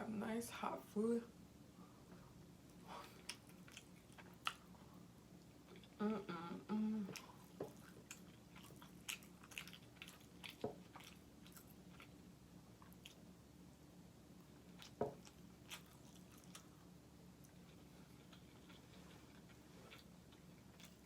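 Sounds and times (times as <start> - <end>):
woman chewing food: 2.7 - 13.4, 14.4 - 21.0
woman humming mmm: 6.0 - 7.4.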